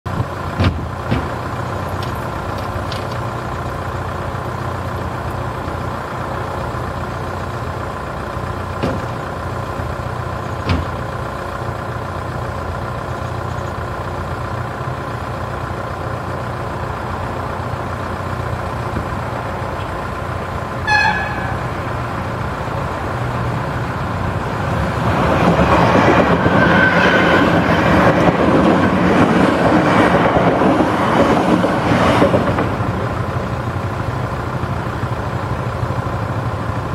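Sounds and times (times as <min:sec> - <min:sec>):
electric train passing: 0:01.3 - 0:36.9
short horn toot: 0:20.8 - 0:21.8.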